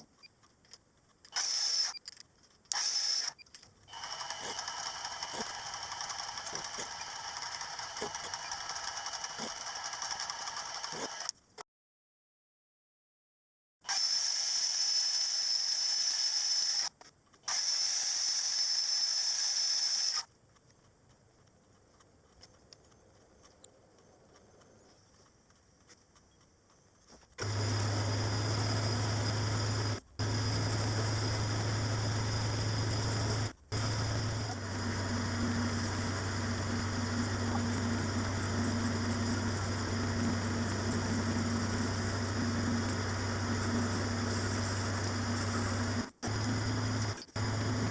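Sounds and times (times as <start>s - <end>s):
small machine whining: 1.3s - 11.4s, 13.8s - 20.3s, 27.4s - 47.9s
electric motor humming: 1.4s - 1.9s, 2.7s - 11.3s, 27.4s - 47.9s.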